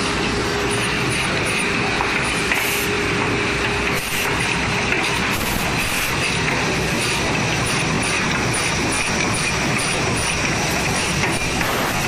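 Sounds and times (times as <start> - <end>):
woodworking machinery running: 0.0 - 12.0.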